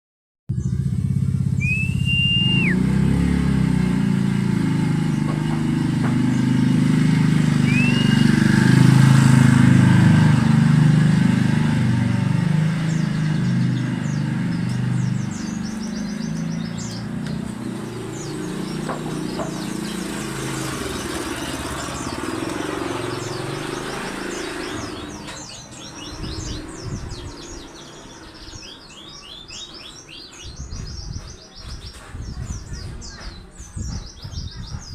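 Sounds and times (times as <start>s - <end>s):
small birds chirping: 0.5s - 3.0s, 4.7s - 34.9s
motorcycle engine running: 0.5s - 28.7s
short rising whistles: 1.6s - 2.9s, 7.6s - 8.6s.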